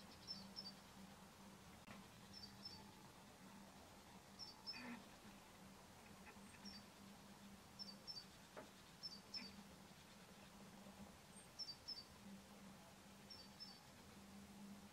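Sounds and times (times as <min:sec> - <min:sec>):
small bird chirping: 0:00.0 - 0:01.0, 0:02.1 - 0:03.0, 0:04.3 - 0:05.2, 0:06.1 - 0:12.3, 0:13.2 - 0:14.0
low steady hum: 0:00.0 - 0:14.9.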